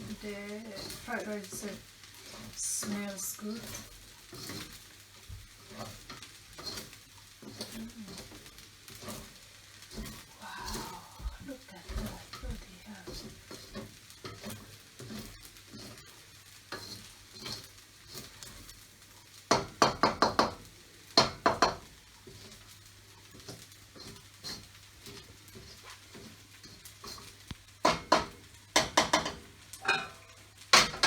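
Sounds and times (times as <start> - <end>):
rice sizzling faintly: 0.0 - 31.0
spatula knocking against a pan: 19.5 - 21.9, 27.8 - 31.0.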